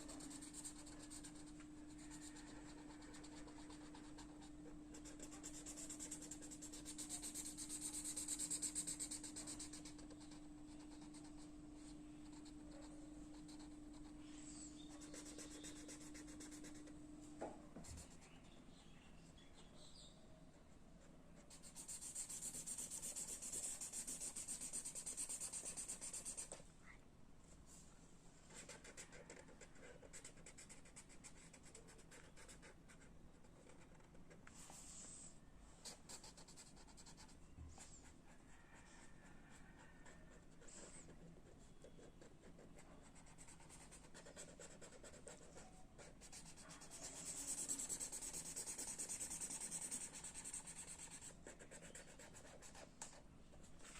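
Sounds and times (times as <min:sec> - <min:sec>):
drawing tool scratching on paper: 0:00.1 - 0:11.6, 0:21.5 - 0:26.6, 0:43.2 - 0:53.2.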